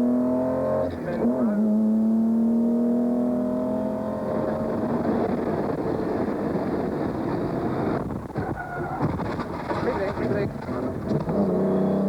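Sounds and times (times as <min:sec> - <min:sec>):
car engine passing at speed: 0:00.0 - 0:08.1, 0:10.8 - 0:12.0
road noise: 0:00.0 - 0:12.0.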